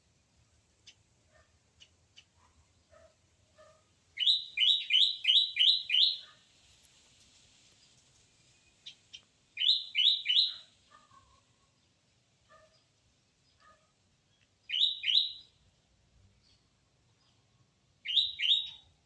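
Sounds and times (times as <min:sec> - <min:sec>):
squirrel chirping: 0:04.2 - 0:06.4, 0:08.8 - 0:10.7, 0:14.7 - 0:15.5, 0:18.0 - 0:19.0.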